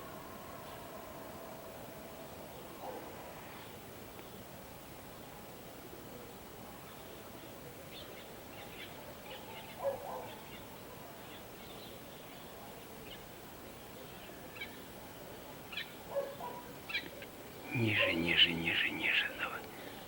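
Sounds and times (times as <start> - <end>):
small birds chirping: 6.8 - 20.0.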